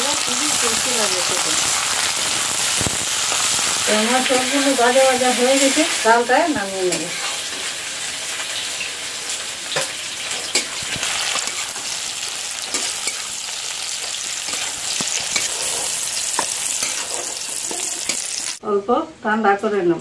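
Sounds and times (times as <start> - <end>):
oil sizzling in a pan: 0.0 - 18.6
spatula scraping food: 14.4 - 18.5.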